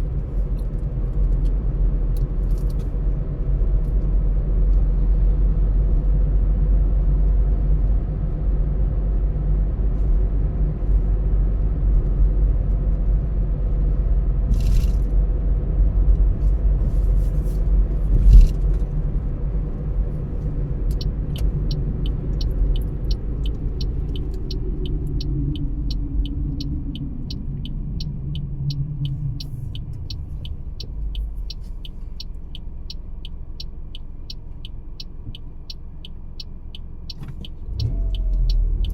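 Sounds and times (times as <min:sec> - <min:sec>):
car engine: 0:00.0 - 0:38.9
tyre and road rumble: 0:11.4 - 0:32.2
turn signal ticking: 0:17.8 - 0:38.9.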